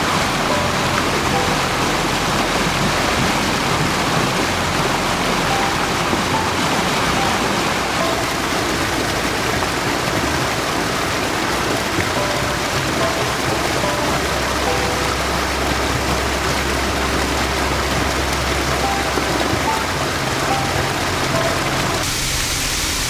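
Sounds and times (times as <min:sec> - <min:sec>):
mountain stream water rushing: 0:00.0 - 0:23.0.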